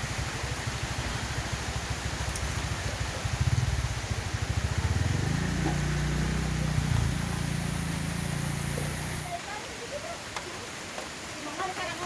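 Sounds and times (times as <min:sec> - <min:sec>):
rain hissing: 0:00.0 - 0:12.0
vehicle engine running: 0:00.8 - 0:09.3.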